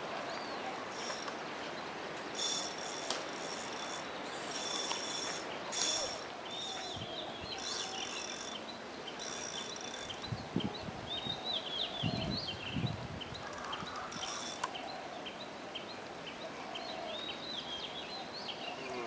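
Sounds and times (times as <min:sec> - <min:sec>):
birds chirping and twittering: 0:00.2 - 0:19.0
high pulsing buzz: 0:02.3 - 0:10.2.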